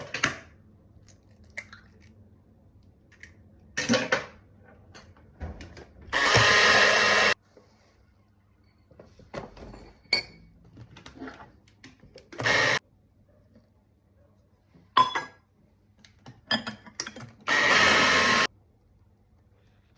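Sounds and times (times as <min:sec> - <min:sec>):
kitchen appliance motor running: 0:06.2 - 0:07.4, 0:12.4 - 0:12.8, 0:17.5 - 0:18.5.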